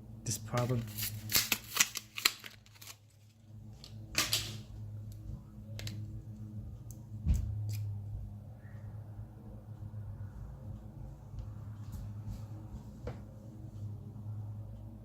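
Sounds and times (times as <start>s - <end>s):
steady low hum: 0.0s - 15.0s
packaging rustle: 0.6s - 3.4s.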